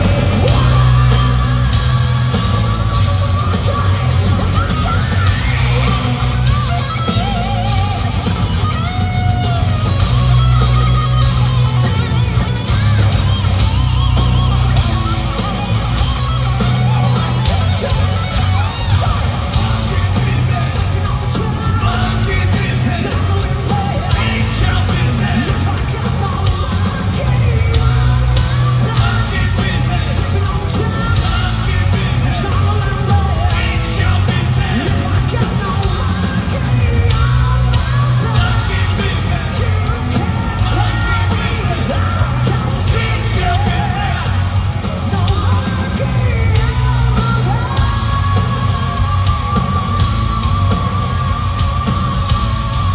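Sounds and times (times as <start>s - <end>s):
live hard rock band: 0.0s - 52.9s
person singing: 16.9s - 52.9s.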